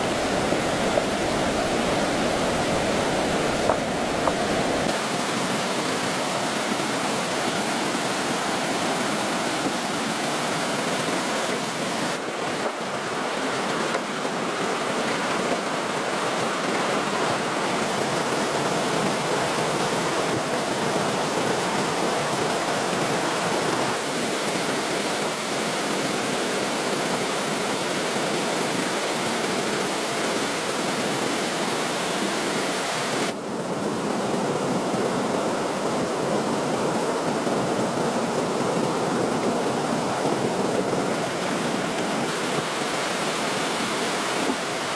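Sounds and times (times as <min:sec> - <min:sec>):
steady rushing noise: 0:00.0 - 0:05.4.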